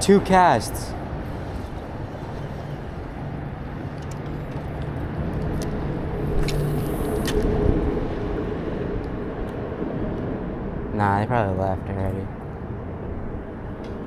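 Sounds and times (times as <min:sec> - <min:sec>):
noisy wash: 0:00.0 - 0:14.0
motor humming: 0:00.9 - 0:07.8.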